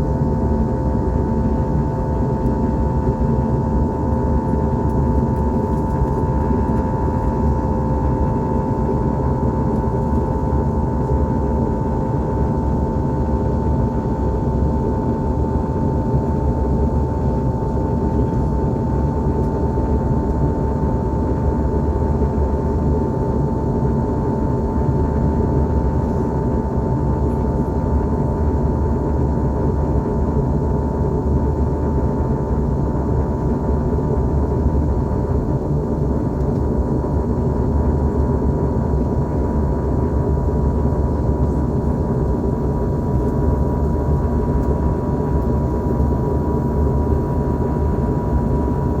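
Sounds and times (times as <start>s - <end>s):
airliner cabin engine roar: 0.0s - 49.0s
steady whine: 39.8s - 49.0s.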